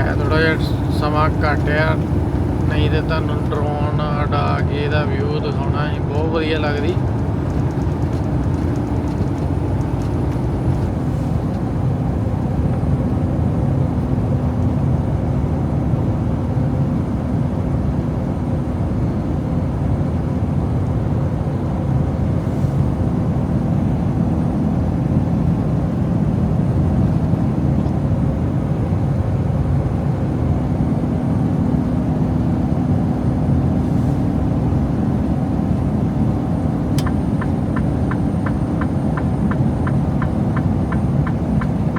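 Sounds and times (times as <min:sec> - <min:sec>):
steady hum: 0:00.0 - 0:13.1
road and tyre noise: 0:00.0 - 0:41.9
truck diesel engine drone: 0:00.0 - 0:41.9.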